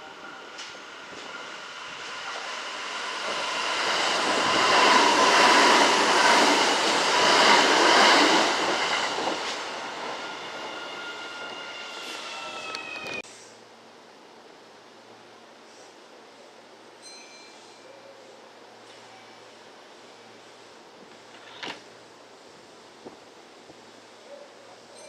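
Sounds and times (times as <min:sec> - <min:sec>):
electric train passing: 0:00.0 - 0:13.2.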